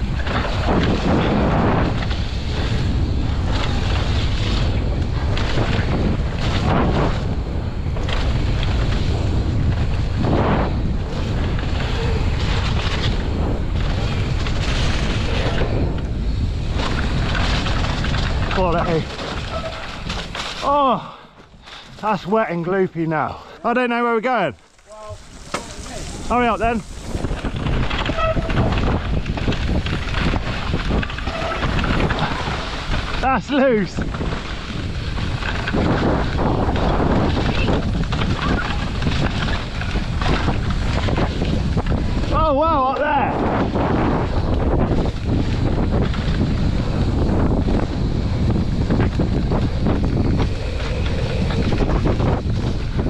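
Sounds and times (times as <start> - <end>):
bike rattling over bumps: 0.0 - 53.0
bike tyres rumbling on muddy trail: 0.0 - 53.0
wind buffeting microphone: 0.0 - 53.0.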